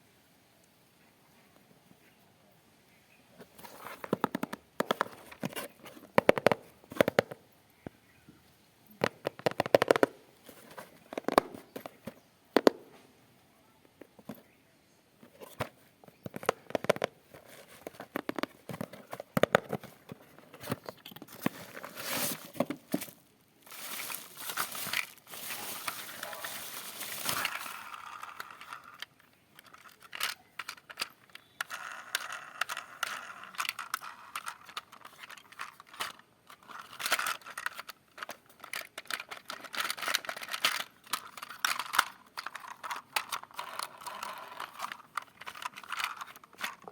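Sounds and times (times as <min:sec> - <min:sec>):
plastic rustling: 0:03.4 - 0:07.4, 0:09.0 - 0:12.8, 0:15.2 - 0:46.9
plastic packaging crinkling: 0:03.6 - 0:07.4, 0:09.0 - 0:12.1, 0:16.3 - 0:46.9.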